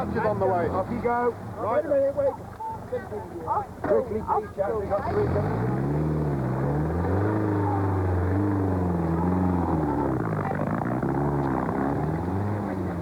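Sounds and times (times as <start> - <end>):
car engine revving: 4.8 - 13.0.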